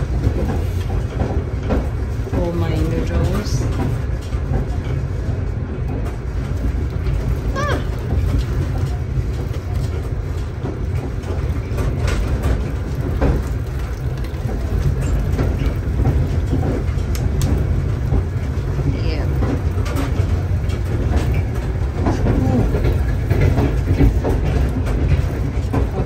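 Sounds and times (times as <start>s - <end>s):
train rumble inside carriage: 0.0s - 26.0s.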